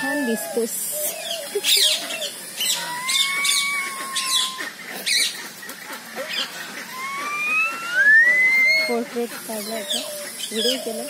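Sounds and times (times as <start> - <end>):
birds chirping sharp calls: 0.0 - 11.0
long whistled bird note: 7.0 - 8.9.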